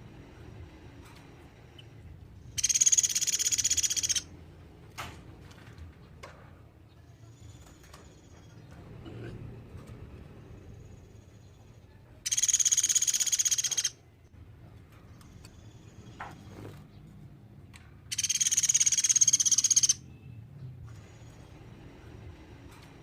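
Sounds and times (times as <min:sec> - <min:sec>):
woodpecker rattling trill: 0:02.4 - 0:04.3, 0:12.2 - 0:14.1, 0:18.1 - 0:20.0.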